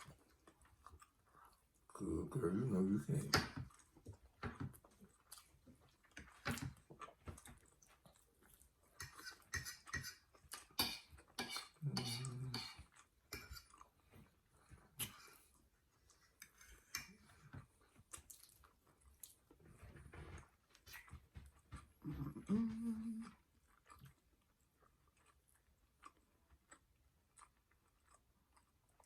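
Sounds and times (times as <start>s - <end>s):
person chewing: 0.0s - 2.1s, 3.2s - 29.0s
cutlery scraping on plates: 9.0s - 12.8s, 13.4s - 13.8s.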